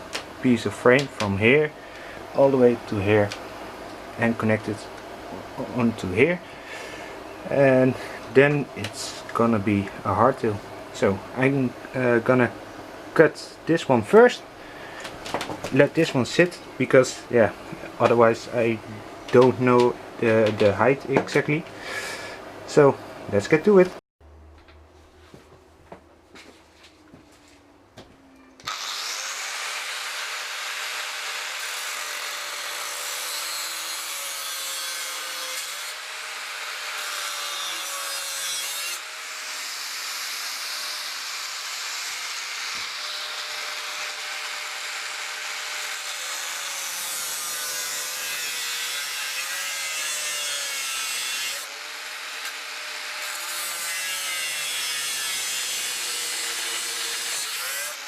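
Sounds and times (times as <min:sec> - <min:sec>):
power tool cutting metal tube: 0:28.6 - 0:58.0.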